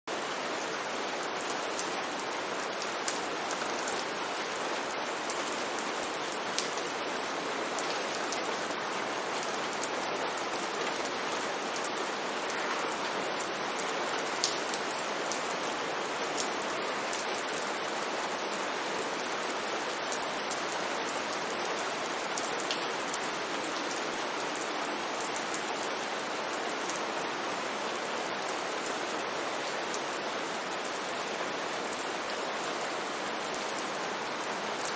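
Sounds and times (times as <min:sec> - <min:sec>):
steady rain hiss: 0:00.1 - 0:34.9
raindrop ticks: 0:03.0 - 0:04.2, 0:06.6 - 0:06.8, 0:14.4 - 0:15.4.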